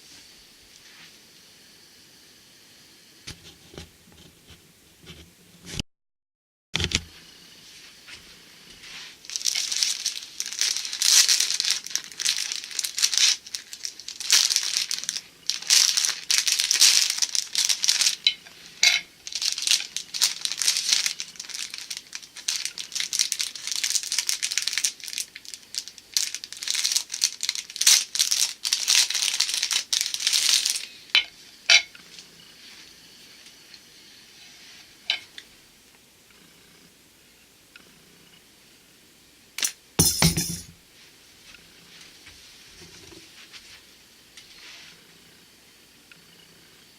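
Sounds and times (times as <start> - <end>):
plastic packaging crinkling: 9.2 - 31.0.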